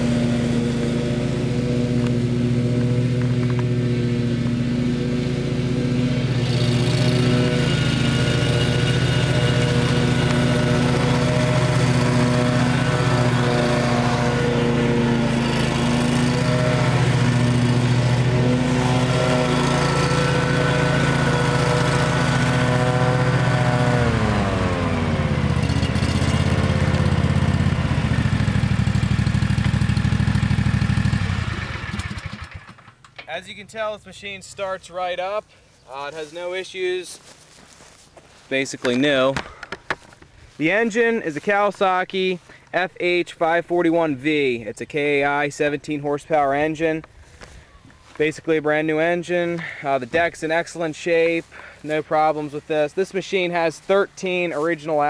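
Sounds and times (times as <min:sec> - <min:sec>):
mower engine running: 0:00.0 - 0:36.4, 0:47.2 - 0:55.0.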